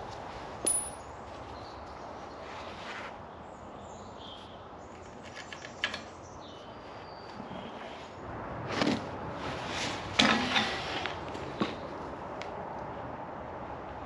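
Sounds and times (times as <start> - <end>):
metal parts clicking and knocking: 0.6 - 1.0.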